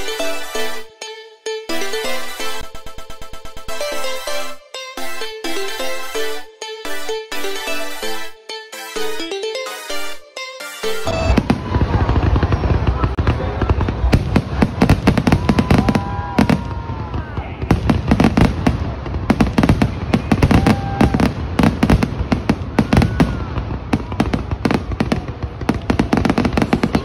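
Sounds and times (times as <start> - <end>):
spectators' voices: 3.7 - 27.0
fireworks bangs and crackles: 11.0 - 27.0.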